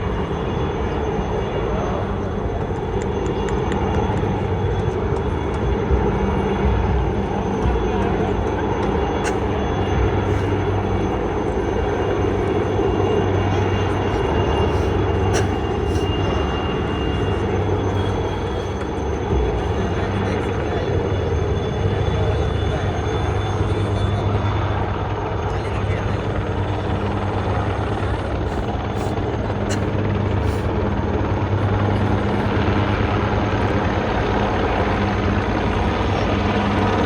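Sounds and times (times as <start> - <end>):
aircraft engine flying over: 0.0 - 37.0
faint crowd voices: 0.0 - 37.0.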